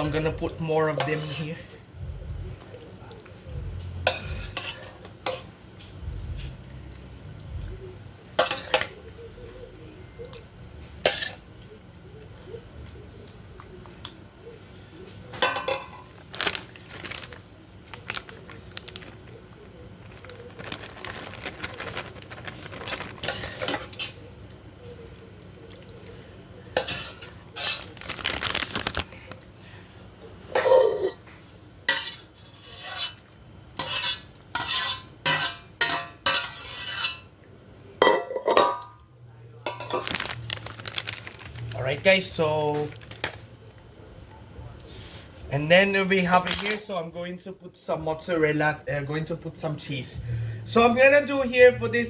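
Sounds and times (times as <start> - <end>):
utensils scraping a dish: 31.9 - 33.2, 33.8 - 37.2.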